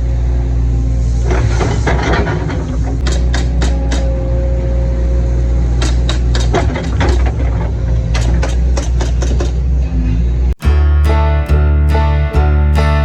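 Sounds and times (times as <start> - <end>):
excavator diesel engine running: 10.6 - 13.0.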